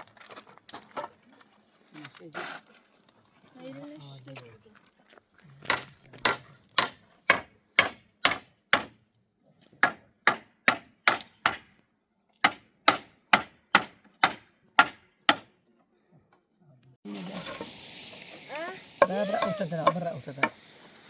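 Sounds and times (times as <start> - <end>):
hammer striking wood: 5.7 - 9.0, 9.8 - 11.7, 12.4 - 15.5.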